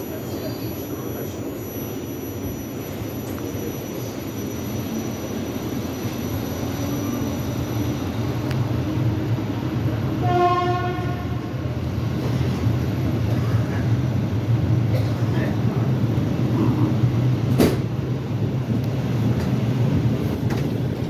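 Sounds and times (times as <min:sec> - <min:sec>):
train rumble: 0:00.0 - 0:21.0
train horn blast: 0:10.2 - 0:11.6.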